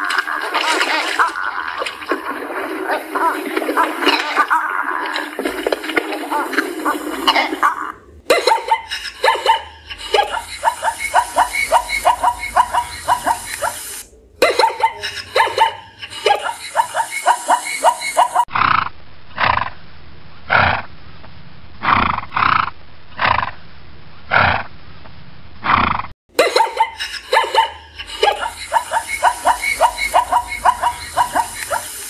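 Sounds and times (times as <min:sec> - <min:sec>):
zebras barking yelps: 0:06.8 - 0:18.5, 0:26.8 - 0:32.0
dull yelping calls: 0:06.9 - 0:14.0, 0:14.6 - 0:18.4, 0:26.9 - 0:32.0.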